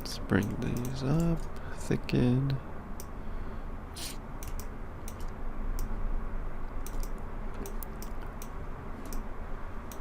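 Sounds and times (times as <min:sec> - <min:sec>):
steady low hum: 0:00.0 - 0:10.0
keyboard and mouse clicking: 0:04.4 - 0:05.9, 0:06.8 - 0:09.3.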